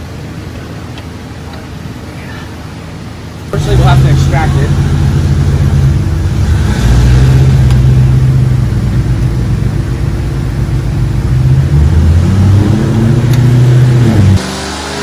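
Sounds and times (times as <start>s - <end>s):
motor droning: 3.6s - 14.4s.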